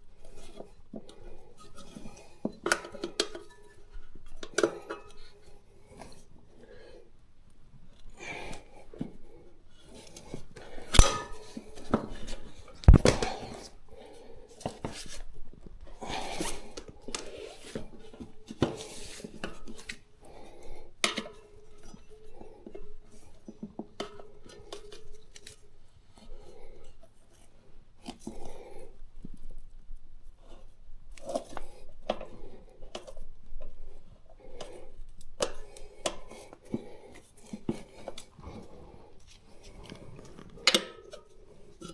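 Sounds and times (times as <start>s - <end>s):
tyre levers scraping metal rim: 10.8s - 12.3s.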